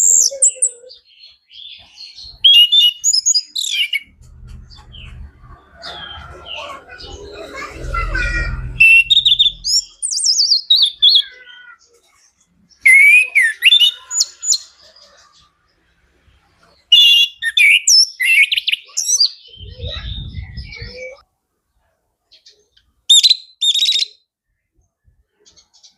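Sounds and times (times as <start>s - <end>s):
faint low hum: 4.0s - 10.0s
thrush singing whistled phrases: 4.9s - 11.2s, 12.8s - 14.7s.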